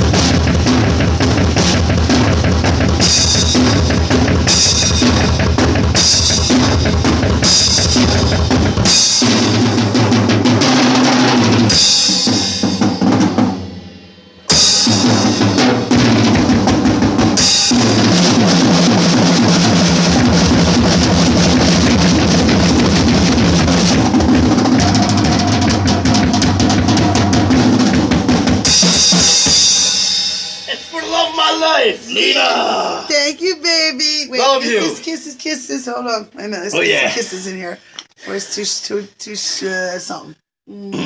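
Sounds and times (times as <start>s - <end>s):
drum kit playing: 0.0s - 35.3s
cymbal crashes: 11.3s - 16.5s, 28.6s - 31.2s
cymbal ringing out: 29.0s - 31.2s.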